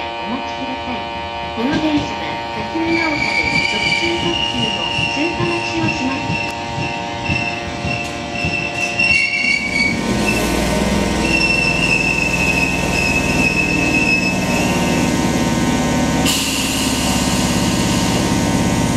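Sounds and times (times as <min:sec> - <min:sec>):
train low rumble: 0:00.0 - 0:18.9
train brakes squealing: 0:02.8 - 0:15.2.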